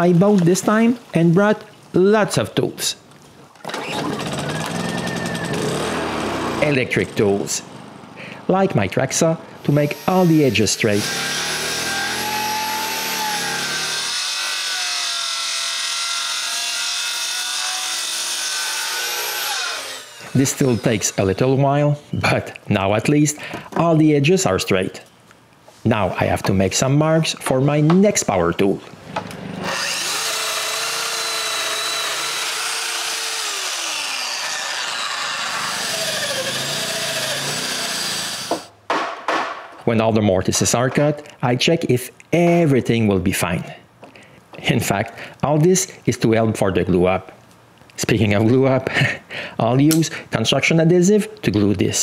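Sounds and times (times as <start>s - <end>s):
track saw cutting wood: 3.7s - 7.2s, 9.6s - 21.9s, 29.4s - 38.7s.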